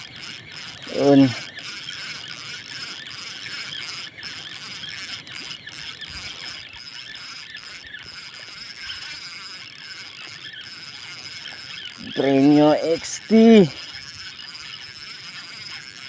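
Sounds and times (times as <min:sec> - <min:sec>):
spinning reel whirring: 0:00.0 - 0:16.0.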